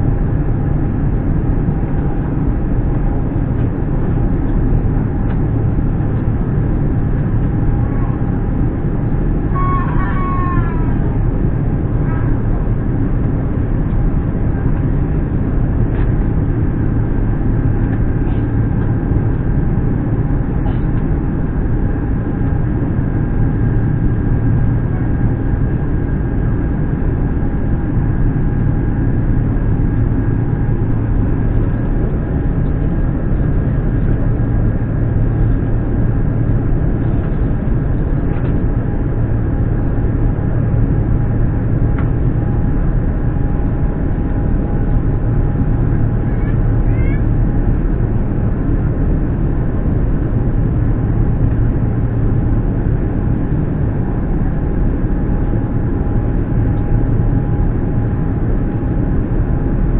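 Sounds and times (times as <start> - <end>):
airliner cabin low rumble: 0.0 - 59.9
faint steady whining tones: 0.0 - 59.9.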